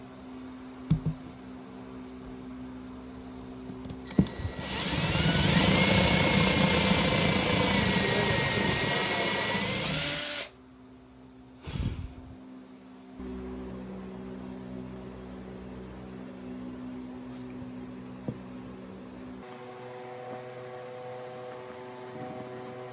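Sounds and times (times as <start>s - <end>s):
knocks: 0.9s - 1.3s
power drill motor whine: 4.1s - 10.6s.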